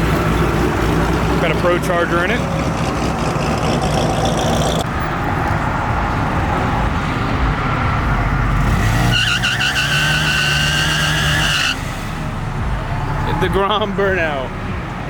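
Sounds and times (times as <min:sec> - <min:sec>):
tyre squealing: 0:08.6 - 0:13.5.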